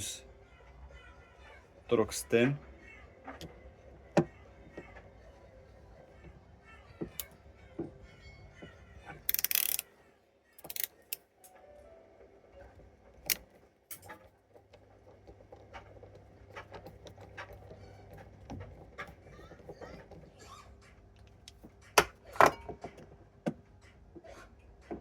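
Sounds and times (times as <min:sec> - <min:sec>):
screwdriver clicks and taps: 0:09.3 - 0:09.8, 0:10.6 - 0:11.2.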